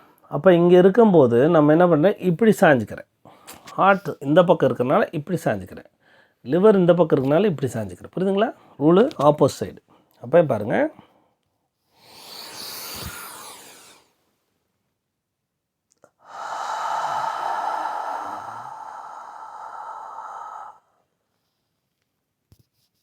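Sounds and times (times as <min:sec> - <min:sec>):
man breathing in deeply: 0:11.9 - 0:14.1, 0:16.1 - 0:21.0
man whispering breathy haaa: 0:12.0 - 0:14.0, 0:16.1 - 0:21.0.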